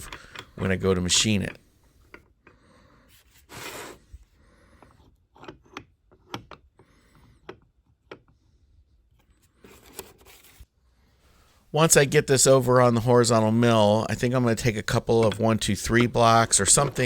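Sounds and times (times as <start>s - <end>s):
short scrape: 3.1s - 4.2s
metal parts clicking and knocking: 14.9s - 17.0s.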